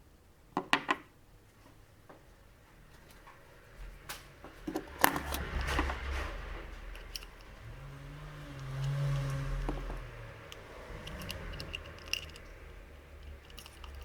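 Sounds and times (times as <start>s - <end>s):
small hard parts clicking: 4.6s - 14.0s.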